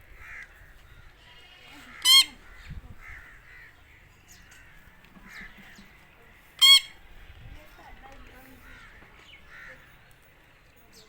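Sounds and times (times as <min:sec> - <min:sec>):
parrot screeching: 0:02.0 - 0:02.5, 0:06.6 - 0:07.0.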